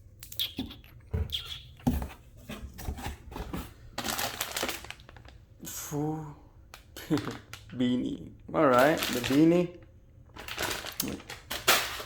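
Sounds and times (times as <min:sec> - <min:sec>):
products knocking and thumping: 0:01.1 - 0:04.2
packaging rustling: 0:02.8 - 0:05.4, 0:06.8 - 0:12.0.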